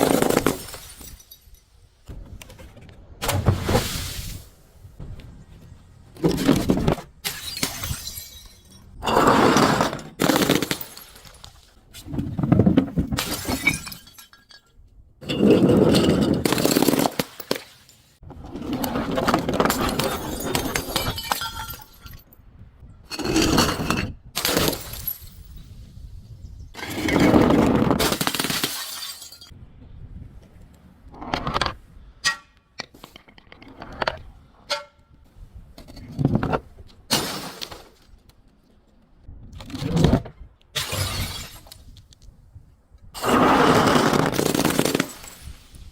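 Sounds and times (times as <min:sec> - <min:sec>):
glass crushed and shattered: 0:00.0 - 0:01.8, 0:07.2 - 0:09.1, 0:09.9 - 0:11.7, 0:13.2 - 0:18.2, 0:19.6 - 0:22.3, 0:24.4 - 0:25.6, 0:28.0 - 0:29.5, 0:37.1 - 0:38.0, 0:40.8 - 0:41.9, 0:44.0 - 0:45.9.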